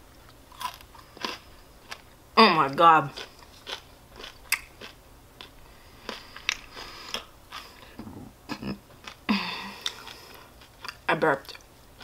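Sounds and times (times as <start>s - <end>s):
chewing mouth sounds: 3.2s - 8.1s.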